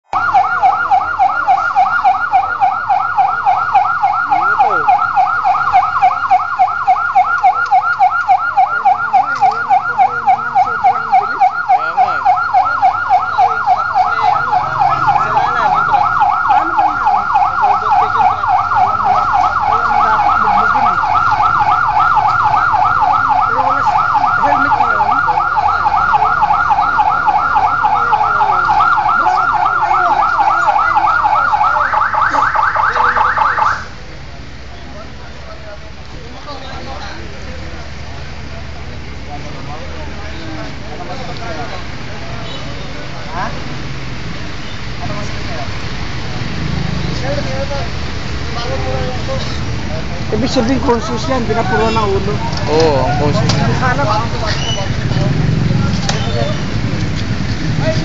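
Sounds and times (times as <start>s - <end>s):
electronic siren warbling: 0.1s - 33.9s.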